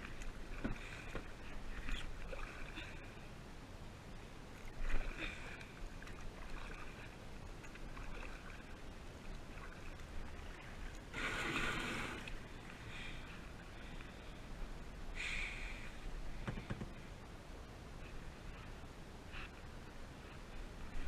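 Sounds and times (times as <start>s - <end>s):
kayak paddle splashing water: 0.0s - 3.0s, 4.6s - 12.8s.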